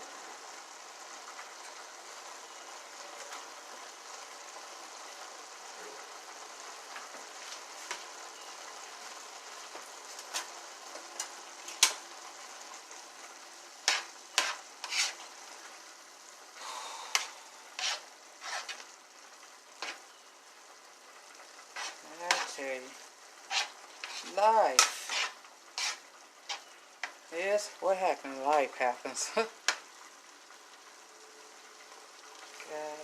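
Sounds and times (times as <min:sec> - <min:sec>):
food sizzling in a frying pan: 0:00.0 - 0:33.0
utensil clinking and scraping pan: 0:13.8 - 0:15.2, 0:17.2 - 0:18.8, 0:21.7 - 0:22.8, 0:23.4 - 0:26.8.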